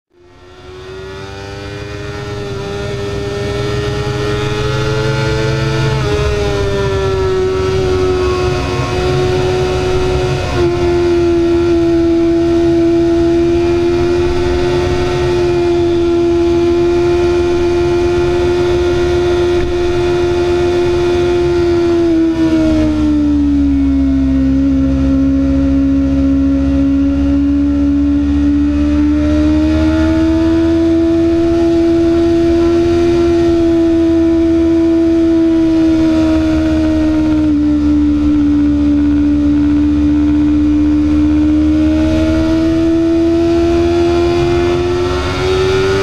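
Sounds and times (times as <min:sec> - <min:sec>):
wind rumble on microphone: 0:00.8 - 0:46.0.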